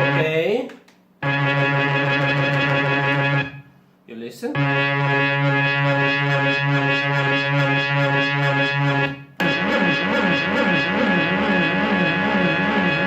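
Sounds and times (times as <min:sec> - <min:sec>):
pulsing low synthesizer note: 0:00.0 - 0:00.3, 0:01.2 - 0:03.7, 0:04.6 - 0:13.0
synthesizer pitch sliding up and down: 0:00.0 - 0:00.4, 0:01.2 - 0:03.7, 0:04.6 - 0:13.0.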